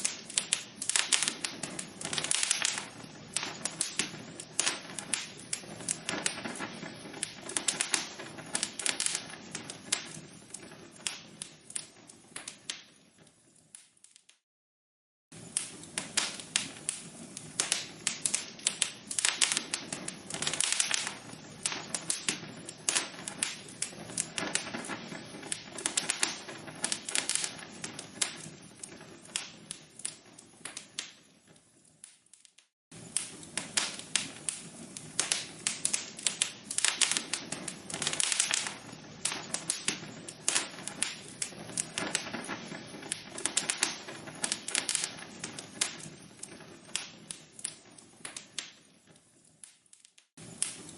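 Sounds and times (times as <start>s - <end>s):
fireplace logs crackling and popping: 0.0s - 14.4s, 15.3s - 50.9s.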